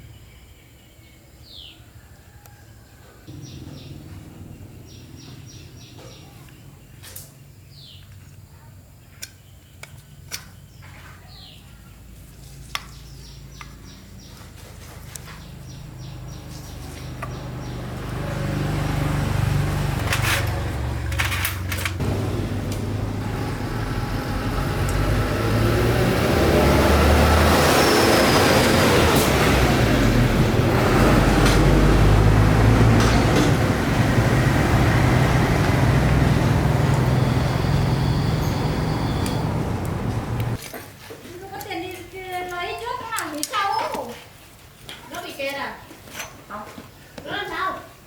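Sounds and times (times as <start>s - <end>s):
engine humming: 3.3s - 7.0s, 13.8s - 40.6s.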